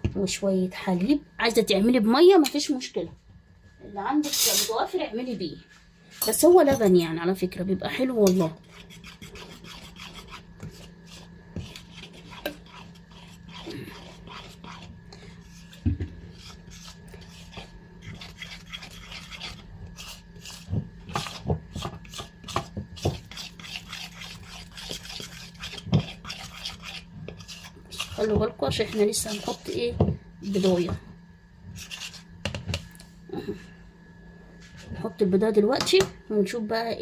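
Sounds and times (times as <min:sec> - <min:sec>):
steady low hum: 0:00.0 - 0:37.0
utensil scraping batter in bowl: 0:08.2 - 0:33.0.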